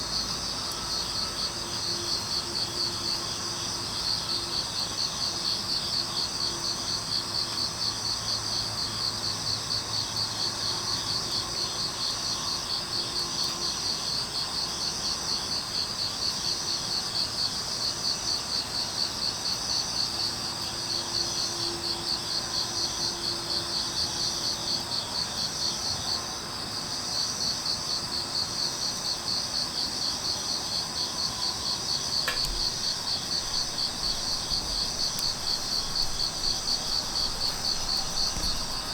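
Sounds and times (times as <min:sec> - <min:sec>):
crickets chirping: 0:00.0 - 0:38.9
faint click: 0:32.2 - 0:38.9.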